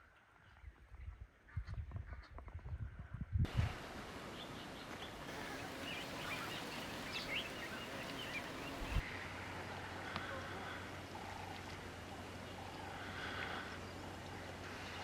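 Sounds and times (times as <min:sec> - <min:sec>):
steady outdoor hiss: 0:03.5 - 0:15.0.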